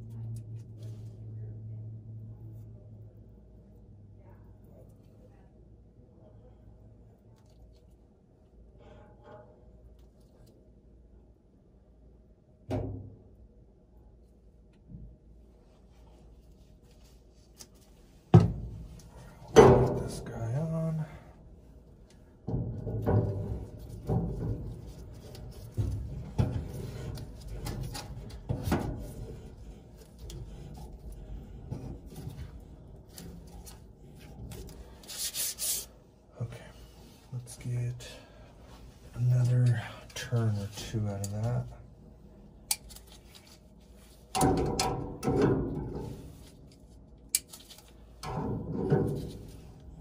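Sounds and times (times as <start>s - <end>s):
metal parts knocking and clunking: 18.4s - 20.3s, 22.4s - 34.9s, 44.3s - 46.6s, 47.3s - 50.0s
parts rubbing and scraping: 22.5s - 36.0s.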